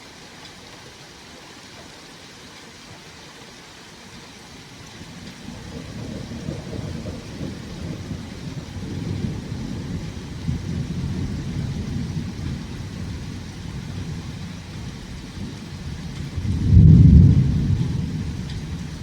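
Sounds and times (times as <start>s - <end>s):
thunder rumbling: 4.9s - 19.0s.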